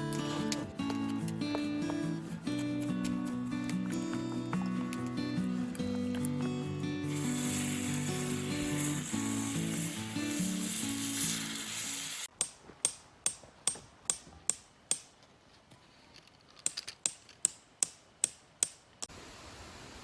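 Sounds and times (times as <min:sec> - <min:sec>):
music: 0:00.0 - 0:12.3.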